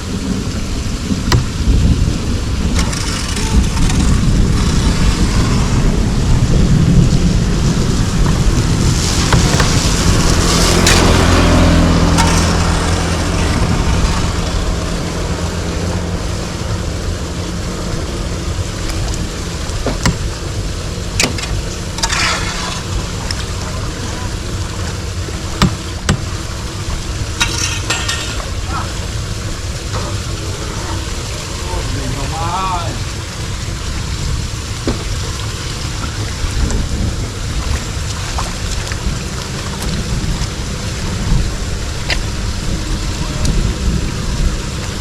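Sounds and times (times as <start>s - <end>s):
steady low rumble: 0.0s - 45.0s
motor vehicle passing by: 2.6s - 19.7s.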